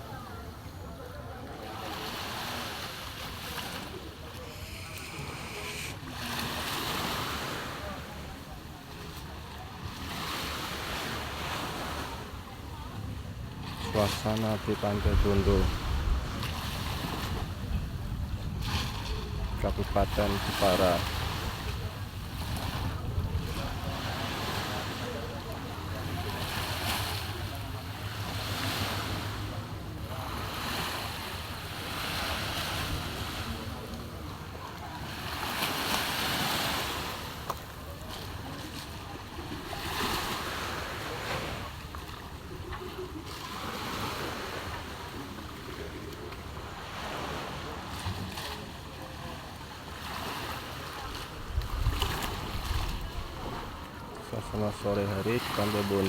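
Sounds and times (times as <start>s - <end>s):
sea surf breaking on beach: 1.4s - 56.0s.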